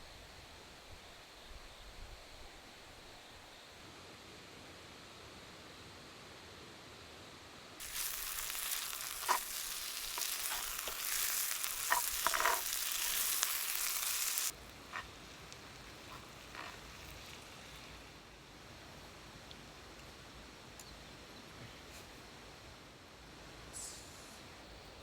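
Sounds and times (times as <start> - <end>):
spoon clicking and scraping: 7.8 - 15.2
rice sizzling in skillet: 7.8 - 18.3.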